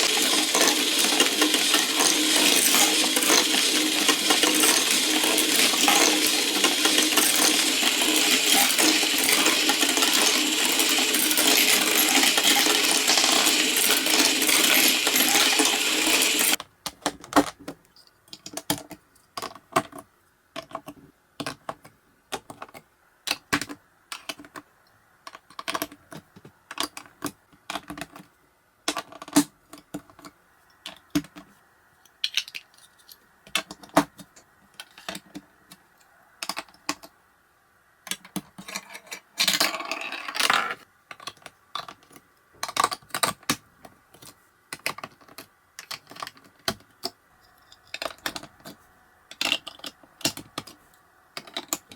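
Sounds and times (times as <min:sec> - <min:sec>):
marbles clattering down marble run: 0:00.0 - 0:16.6
marbles rolling and dropping: 0:00.0 - 0:16.6.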